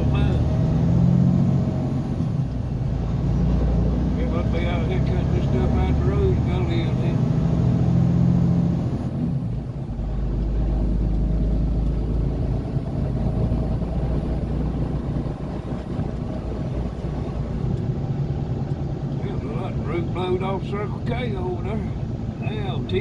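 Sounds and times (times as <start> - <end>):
engine and road noise rumble: 0.0 - 23.0.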